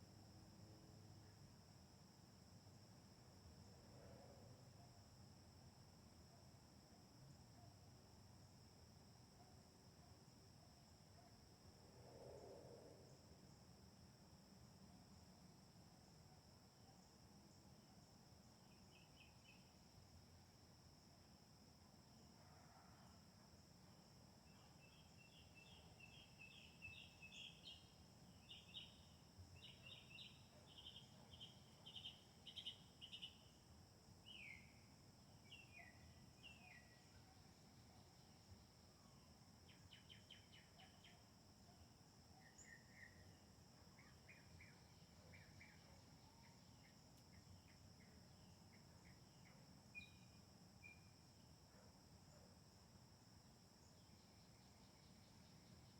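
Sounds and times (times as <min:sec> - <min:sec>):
songbird chirps: 0:24.6 - 0:33.5, 0:35.5 - 0:38.7.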